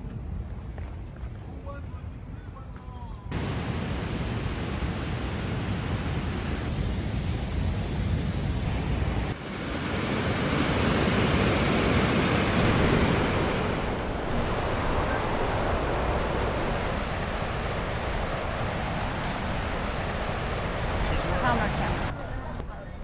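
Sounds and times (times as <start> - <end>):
wind buffeting microphone: 3.3 - 14.9
waterfall roaring: 3.3 - 22.1.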